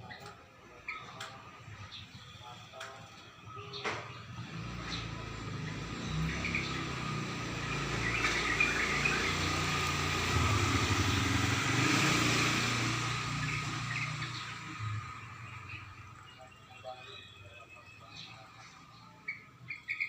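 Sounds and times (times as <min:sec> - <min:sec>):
vehicle engine passing by: 0:04.3 - 0:16.4.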